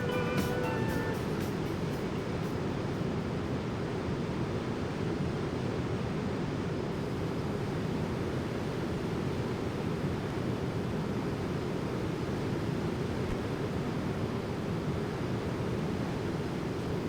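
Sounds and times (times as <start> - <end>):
aircraft cabin roar: 0.0 - 3.9.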